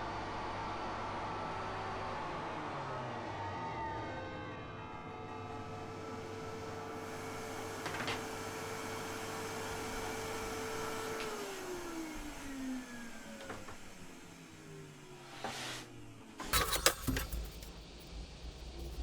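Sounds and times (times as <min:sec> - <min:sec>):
clatter: 0:16.4 - 0:19.0.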